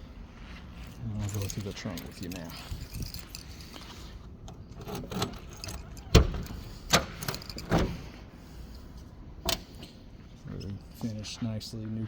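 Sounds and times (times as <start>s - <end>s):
keys jangling: 0.9s - 8.0s.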